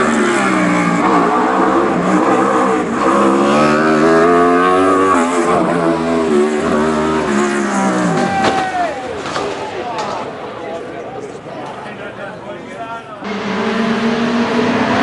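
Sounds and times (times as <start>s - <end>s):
race car engine accelerating: 0.0s - 8.3s, 13.2s - 15.0s.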